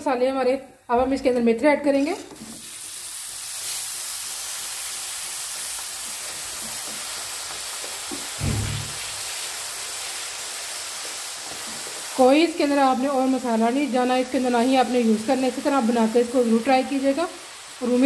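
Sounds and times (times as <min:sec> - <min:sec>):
leaves sizzling in hot oil: 0:01.9 - 0:18.0
dull thump: 0:08.4 - 0:09.0.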